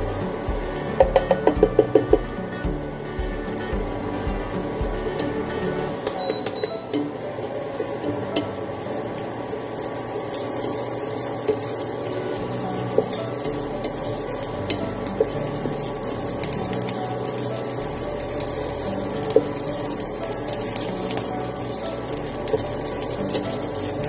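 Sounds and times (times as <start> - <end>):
food sizzling in a frying pan: 0.0 - 24.0
spatula tapping on pan: 0.5 - 2.3.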